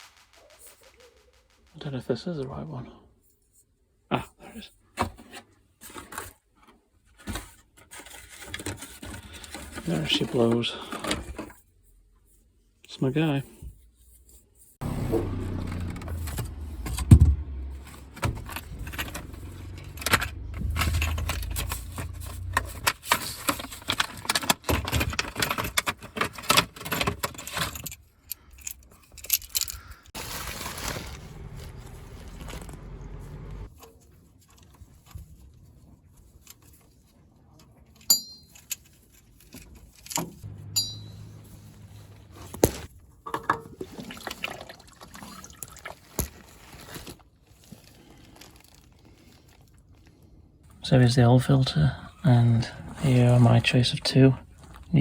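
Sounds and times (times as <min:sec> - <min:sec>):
clicks and metal knocks: 0:38.0 - 0:43.8
sharp metallic clinks: 0:38.1 - 0:38.7, 0:40.5 - 0:41.7
oil pouring and splattering: 0:43.3 - 0:46.4.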